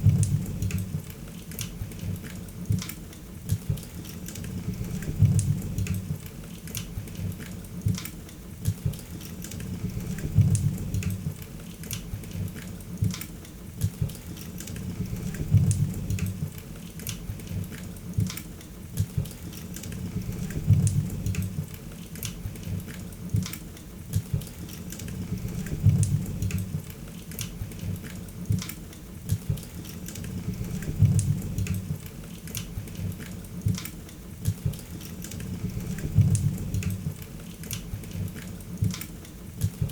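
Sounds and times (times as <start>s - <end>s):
low rumble of flame: 0.0s - 1.1s, 4.4s - 6.3s, 9.6s - 11.4s, 14.8s - 16.6s, 19.9s - 21.8s, 25.1s - 26.9s, 30.2s - 32.1s, 35.4s - 37.2s.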